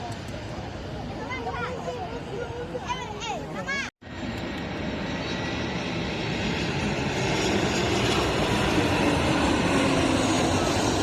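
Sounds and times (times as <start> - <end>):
jet engine rushing: 4.0 - 11.0.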